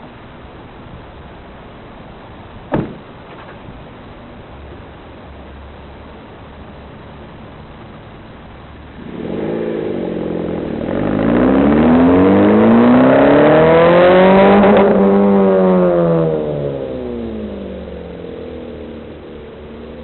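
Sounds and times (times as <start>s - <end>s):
car engine revving: 8.8s - 20.0s.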